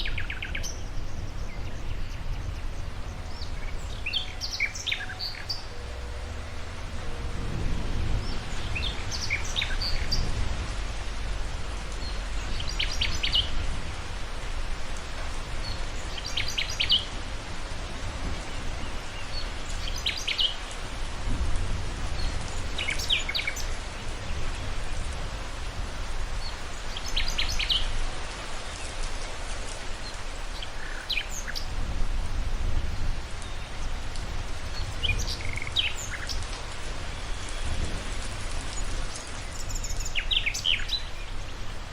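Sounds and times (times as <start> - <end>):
songbird chirping: 0.0 - 21.4, 22.1 - 41.9
steady rain: 0.0 - 41.9
low rumble: 0.8 - 16.4.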